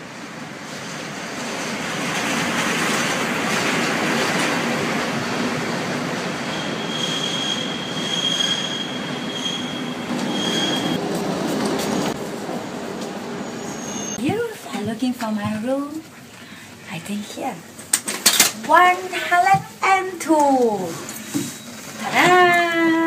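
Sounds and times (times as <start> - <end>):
train rolling on rails: 0.0 - 23.0
wheel squeal: 6.4 - 11.0, 13.4 - 14.2.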